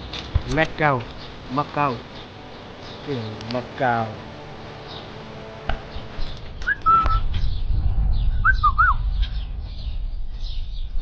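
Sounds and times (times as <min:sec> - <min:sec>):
microphone rumble: 0:04.2 - 0:11.0
faint high bird chirping: 0:05.8 - 0:11.0
bird whistles: 0:06.6 - 0:07.4, 0:08.4 - 0:09.4.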